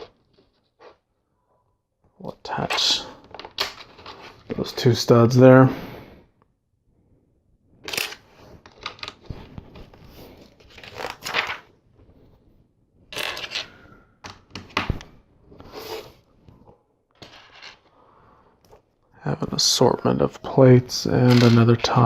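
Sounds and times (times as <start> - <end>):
plastic pieces clicking: 7.8 - 9.3
plastic pieces rustling and rubbing: 7.9 - 11.7, 21.2 - 22.0.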